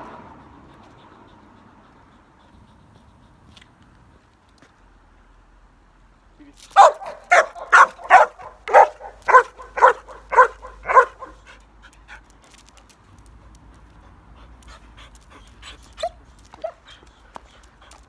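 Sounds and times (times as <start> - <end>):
dog barking: 6.8 - 11.5.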